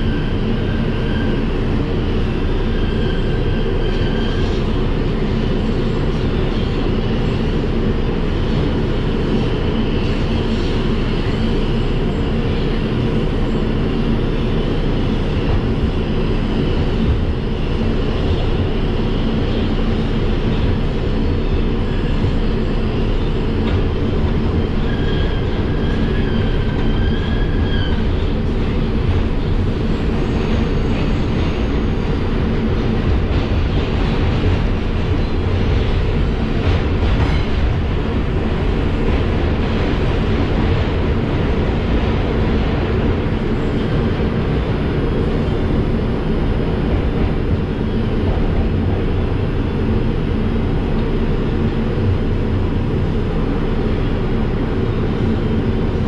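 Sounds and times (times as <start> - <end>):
subway train rumbling: 0.0 - 56.0
high-pitched wheel squeal: 2.6 - 4.7, 24.6 - 28.8.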